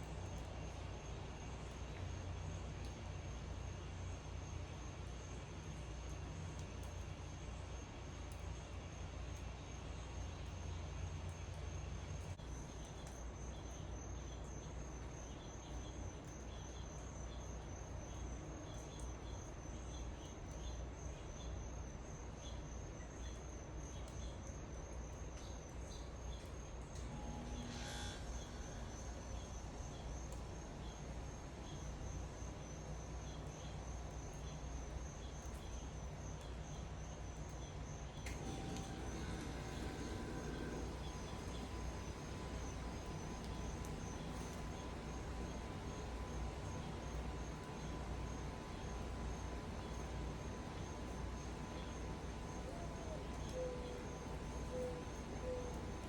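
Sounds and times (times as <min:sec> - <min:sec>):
insects trilling: 0:27.2 - 0:56.0
low outdoor rumble: 0:38.2 - 0:56.0.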